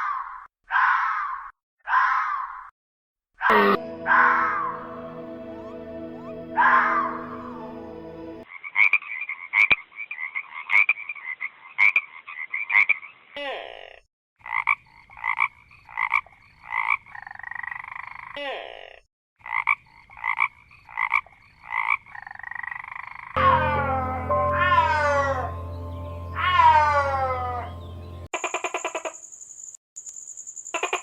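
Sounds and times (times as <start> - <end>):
animal croaking: 3.5 - 4.6.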